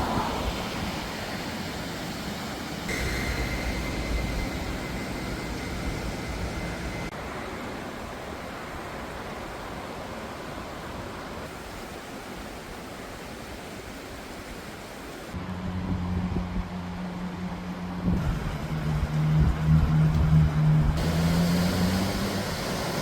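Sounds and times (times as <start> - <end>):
steady rushing noise: 0.0 - 12.9
heavy machinery engine hum: 2.8 - 7.5, 15.4 - 23.0.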